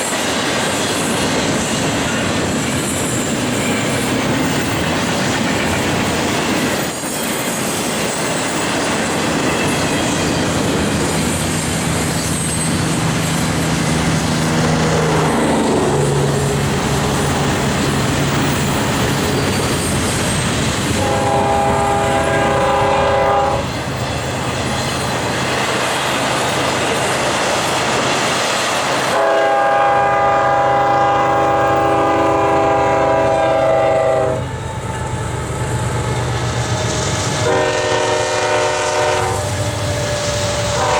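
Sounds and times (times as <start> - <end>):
train wheels clicking on rails: 0.0 - 40.9
train horn: 14.6 - 16.6, 20.9 - 23.7, 29.1 - 34.5, 37.4 - 40.9.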